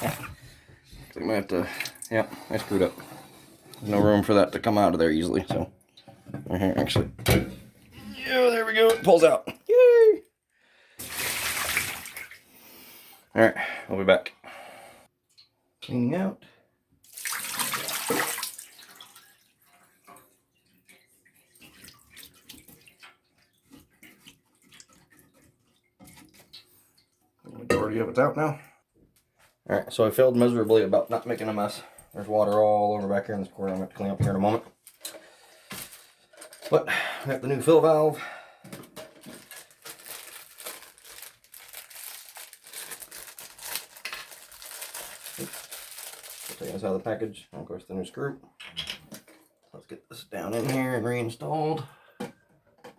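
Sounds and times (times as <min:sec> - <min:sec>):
water dripping: 0:01.5 - 0:02.2, 0:15.3 - 0:15.9, 0:17.0 - 0:27.2
water rushing from toilet tank: 0:11.0 - 0:12.4
plastic packaging crinkling: 0:39.0 - 0:47.0.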